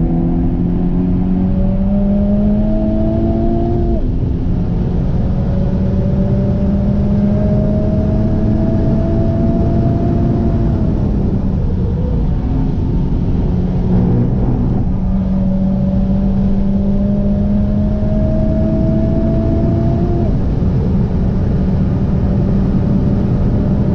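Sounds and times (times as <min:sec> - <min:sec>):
car engine accelerating: 0:00.0 - 0:23.9.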